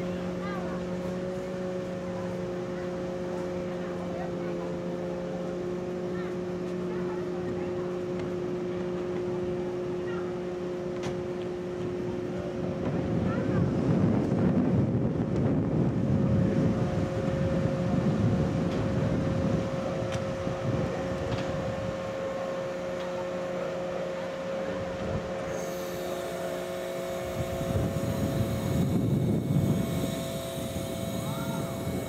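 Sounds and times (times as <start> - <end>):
small aircraft motor humming: 0.0 - 32.0
wind buffeting on microphone: 11.9 - 22.2, 27.1 - 32.0.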